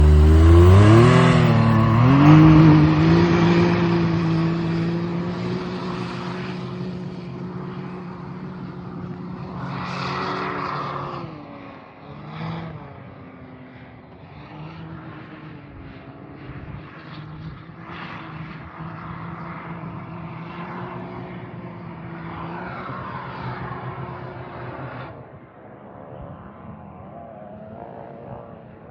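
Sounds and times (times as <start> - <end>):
turbo whoosh: 0.0 - 3.2
engine revving: 0.0 - 6.5.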